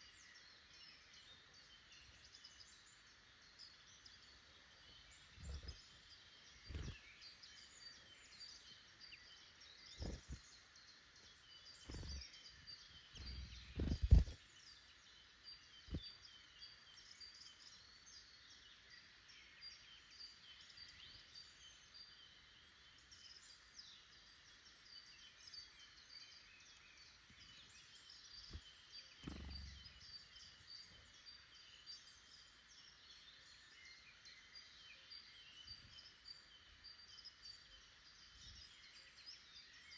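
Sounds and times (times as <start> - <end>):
birds singing and chirping: 0.0 - 22.2, 23.0 - 39.9
low thumps: 13.2 - 14.4.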